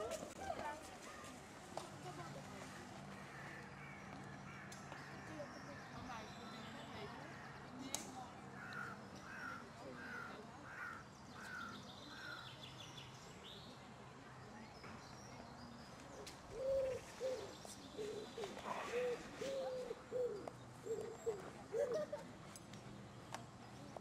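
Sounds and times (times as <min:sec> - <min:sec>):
low cooing or hooting: 0:18.9 - 0:22.2.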